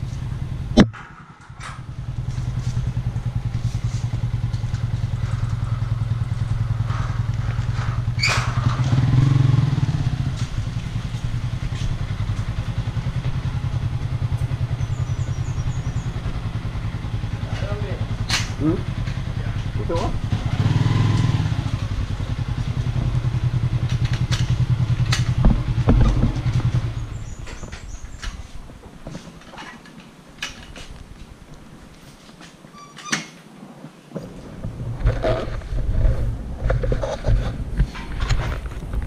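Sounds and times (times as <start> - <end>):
motorcycle engine idling: 0.0 - 29.1.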